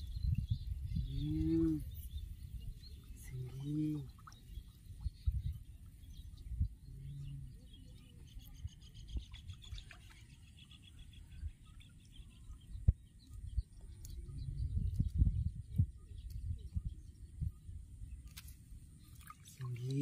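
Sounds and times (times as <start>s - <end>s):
low rumble: 12.8s - 18.2s.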